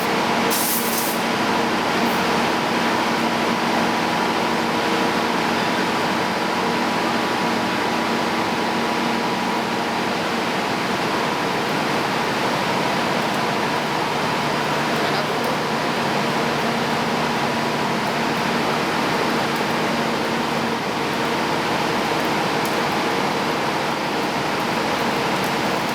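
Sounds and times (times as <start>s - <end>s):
rail-welding machinery droning: 0.0s - 25.9s
short hiss: 0.5s - 1.2s.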